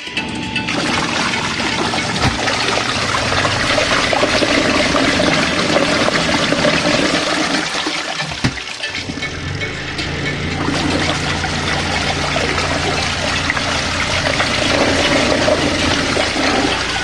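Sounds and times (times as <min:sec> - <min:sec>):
washing machine motor hum: 0:00.0 - 0:17.0
rushing water: 0:00.7 - 0:09.6, 0:10.6 - 0:17.0.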